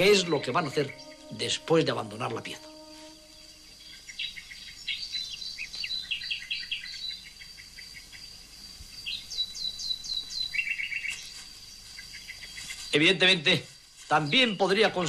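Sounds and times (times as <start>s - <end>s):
faint steady high tone: 0.0s - 4.3s
small birds chirping: 0.0s - 15.0s.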